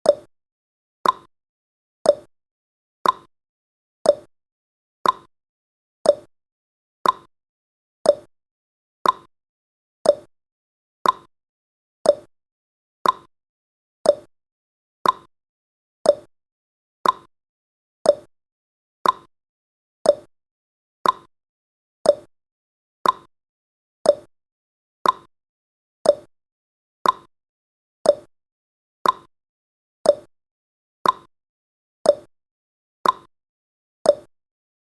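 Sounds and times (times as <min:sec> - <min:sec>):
clock tick sound effect: 0:00.0 - 0:00.3, 0:01.0 - 0:01.3, 0:02.0 - 0:02.3, 0:03.0 - 0:03.3, 0:04.0 - 0:04.3, 0:05.0 - 0:05.3, 0:06.0 - 0:06.3, 0:07.0 - 0:07.3, 0:08.0 - 0:08.3, 0:09.0 - 0:09.3, 0:10.0 - 0:10.3, 0:11.0 - 0:11.3, 0:12.0 - 0:12.3, 0:13.0 - 0:13.3, 0:14.0 - 0:14.3, 0:15.0 - 0:15.3, 0:16.0 - 0:16.3, 0:17.0 - 0:17.3, 0:18.0 - 0:18.3, 0:19.0 - 0:19.3, 0:20.0 - 0:20.3, 0:21.0 - 0:21.3, 0:22.0 - 0:22.3, 0:23.0 - 0:23.3, 0:24.0 - 0:24.3, 0:25.0 - 0:25.3, 0:26.0 - 0:26.3, 0:27.0 - 0:27.3, 0:28.0 - 0:28.3, 0:29.0 - 0:29.3, 0:30.0 - 0:30.3, 0:31.0 - 0:31.3, 0:32.0 - 0:32.3, 0:33.0 - 0:33.3, 0:34.0 - 0:34.3.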